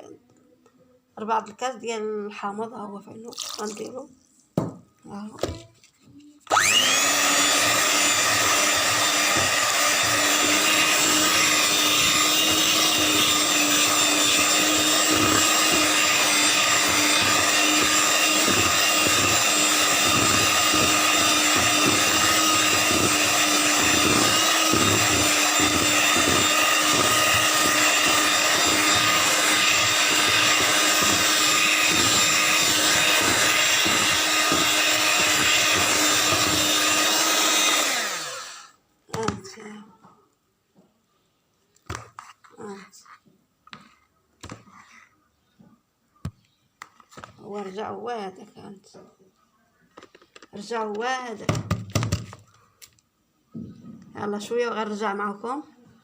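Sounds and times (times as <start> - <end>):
electric mixer running: 6.5 - 38.8.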